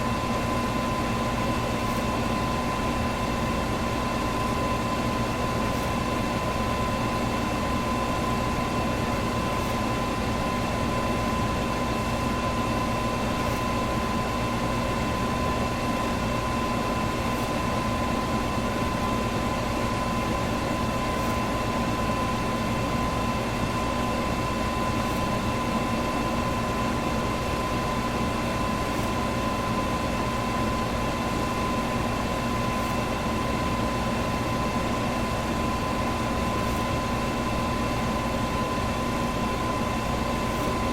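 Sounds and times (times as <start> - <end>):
electric fan running: 0.0 - 40.9.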